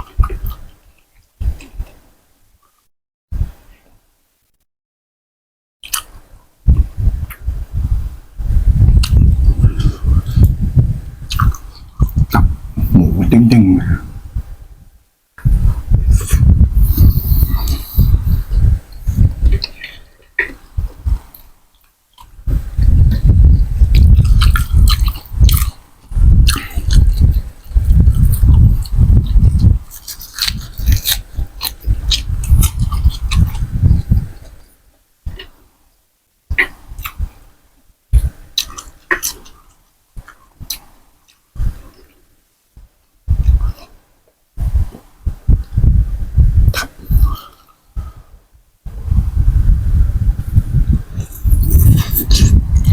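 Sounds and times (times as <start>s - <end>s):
wet sticky mouth clicks: 5.8s - 6.1s, 11.3s - 12.5s, 51.2s - 52.9s
loud close chewing: 8.9s - 13.4s, 16.1s - 35.6s, 38.2s - 42.2s, 51.1s - 52.9s
person slurping soup: 16.2s - 18.6s, 51.1s - 52.9s.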